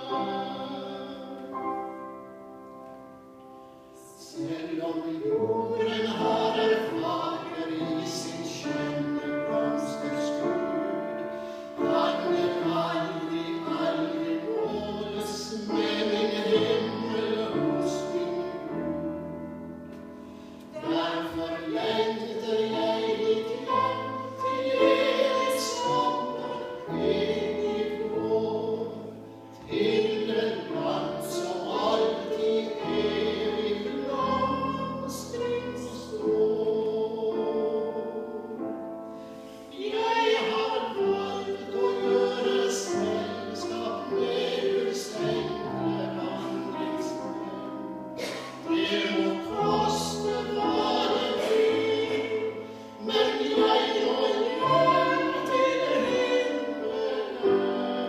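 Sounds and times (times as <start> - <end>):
women singing a hymn: 0.0 - 1.9, 4.0 - 19.7, 20.4 - 58.0.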